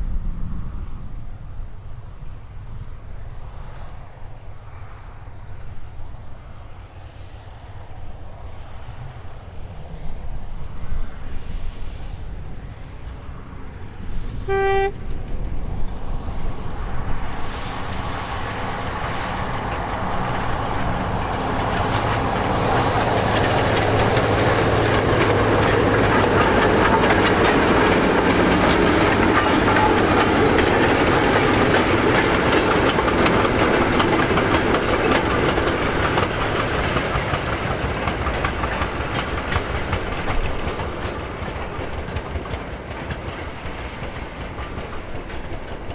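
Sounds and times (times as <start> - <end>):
train wheels clattering on rails: 8.5 - 45.9
train whistle toot: 14.1 - 34.4.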